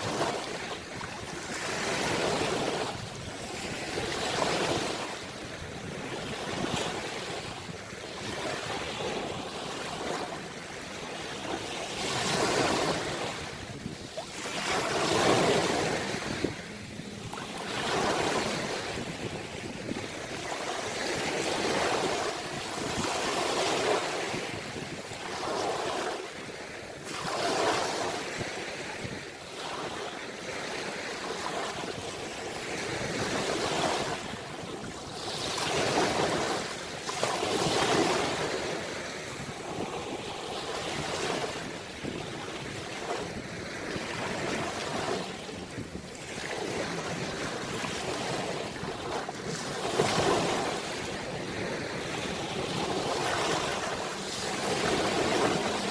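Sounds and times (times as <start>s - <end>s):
ocean waves breaking on shore: 0.0s - 55.9s.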